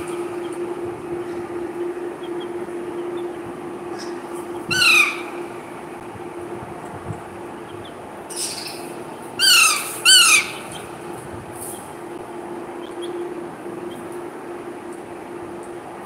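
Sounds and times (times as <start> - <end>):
parrot squawks: 4.7 - 5.3, 9.4 - 10.6.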